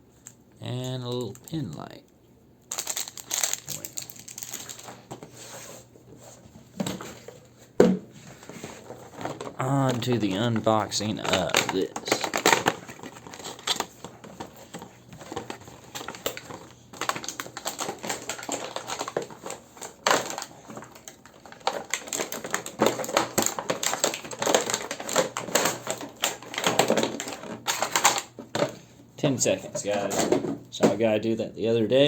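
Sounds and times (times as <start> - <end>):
plastic packaging crinkling: 2.7 - 5.6, 8.4 - 28.8
box being opened and handled: 2.8 - 28.7.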